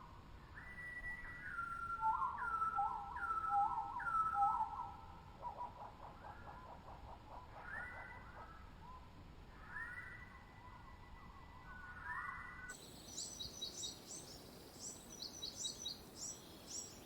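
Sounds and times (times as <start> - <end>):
birds whistling: 13.1 - 17.0.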